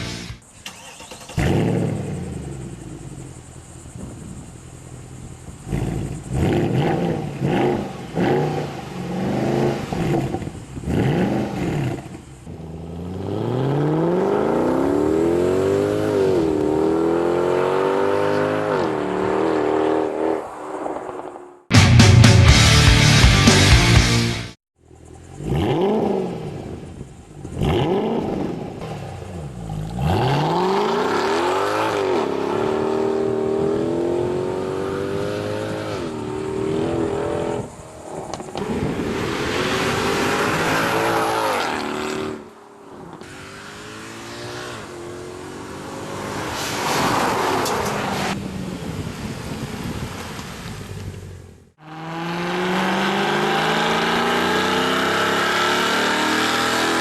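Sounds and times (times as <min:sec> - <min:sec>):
car engine revving and accelerating: 0:01.2 - 0:04.2, 0:05.5 - 0:20.5, 0:25.3 - 0:26.8, 0:27.4 - 0:37.8, 0:38.5 - 0:48.4, 0:51.8 - 0:57.0.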